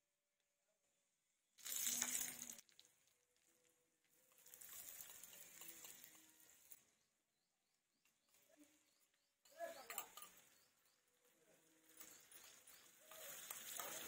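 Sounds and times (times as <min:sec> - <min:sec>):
food sizzling in a pan: 0:01.6 - 0:03.0, 0:04.3 - 0:06.8.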